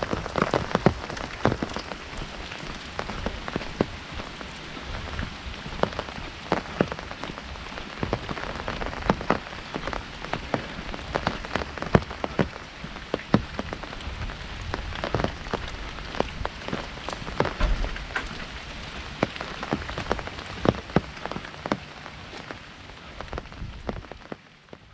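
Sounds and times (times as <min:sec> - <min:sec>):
heavy rain on an umbrella: 0:00.0 - 0:24.9
drops striking umbrella canopy: 0:14.7 - 0:24.9.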